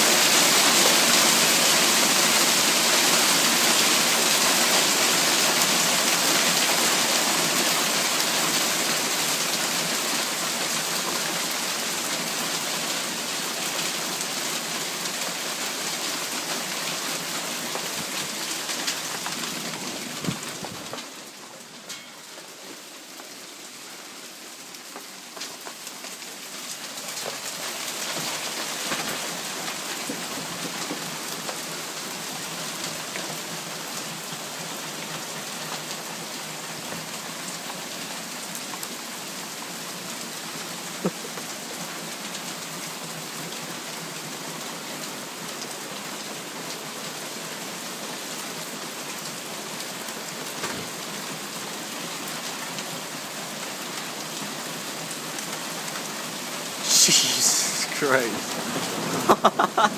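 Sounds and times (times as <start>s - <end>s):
heavy rain and hail: 0.0s - 59.9s
sharp hail impacts: 26.8s - 31.6s.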